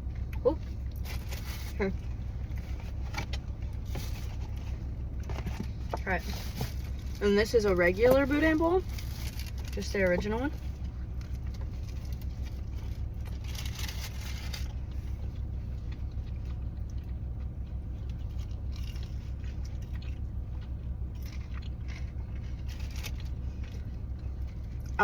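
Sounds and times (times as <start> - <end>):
low engine hum: 0.0 - 25.0
chewing crunchy food: 10.5 - 25.0.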